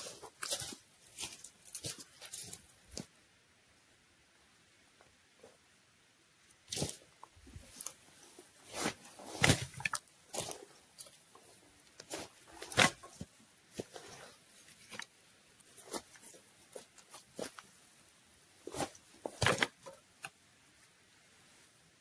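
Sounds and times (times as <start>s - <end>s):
rustles crackles and light knocks: 0.0s - 3.1s, 6.7s - 17.8s, 18.6s - 20.4s.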